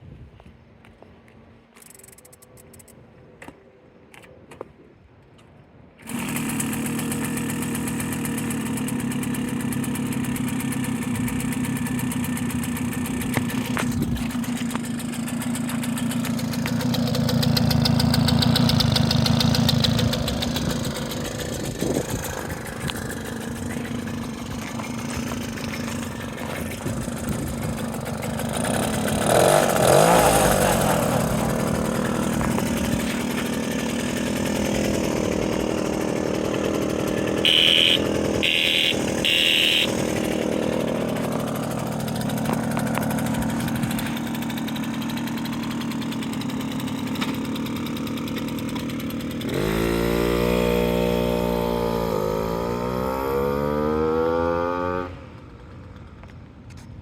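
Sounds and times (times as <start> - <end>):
moped engine idling and revving: 6.0 - 57.0
short horn beeps: 37.4 - 40.3.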